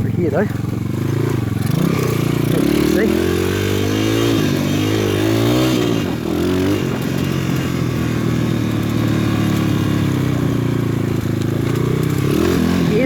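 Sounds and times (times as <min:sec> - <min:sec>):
motorbike engine revving: 0:00.0 - 0:13.0.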